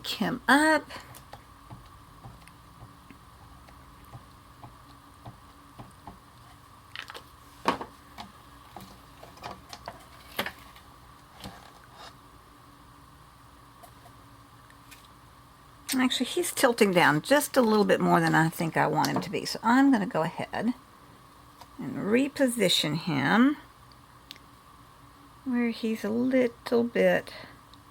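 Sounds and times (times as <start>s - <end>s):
faint steady hum: 0.0s - 27.9s
ink pad dabbing taps: 1.3s - 6.2s.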